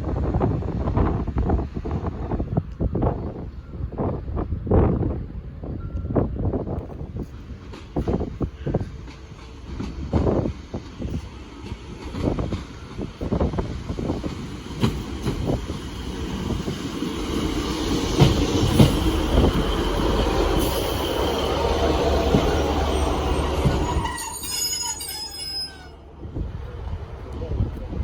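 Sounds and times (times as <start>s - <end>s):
train wheels rattling over rails: 6.8s - 25.8s
high-pitched wheel squeal: 22.4s - 26.1s.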